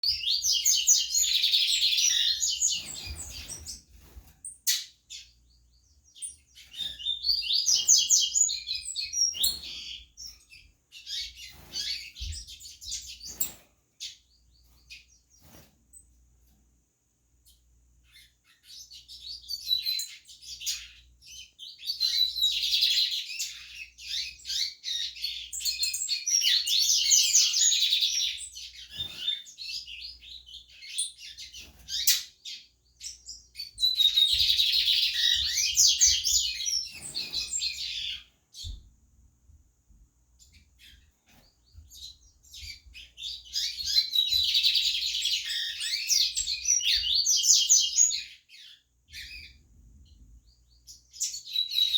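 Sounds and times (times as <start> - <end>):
bird twittering song: 0.0 - 16.2, 17.4 - 39.0, 40.4 - 51.9.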